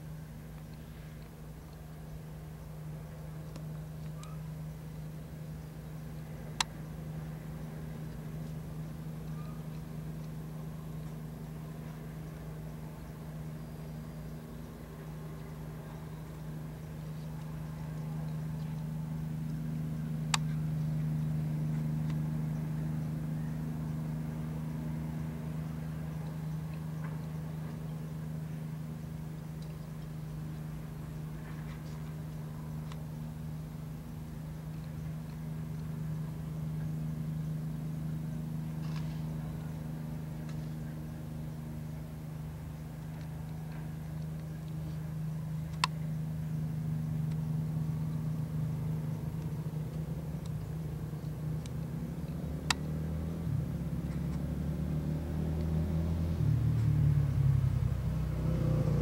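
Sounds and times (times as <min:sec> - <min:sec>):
vehicle engine idling: 0:00.0 - 0:59.0
sharp clicks: 0:45.6 - 0:46.2, 0:49.2 - 0:53.0.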